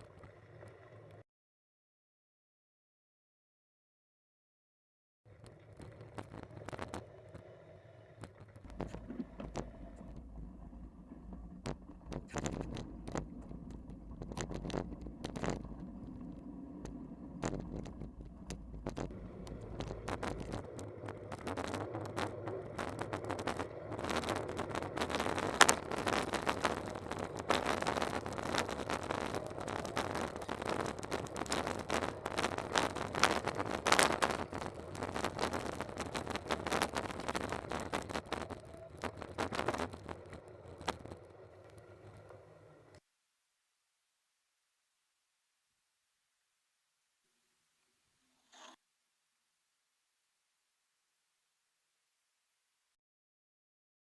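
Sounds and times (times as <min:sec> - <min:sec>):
low rumble: 0:08.7 - 0:37.7.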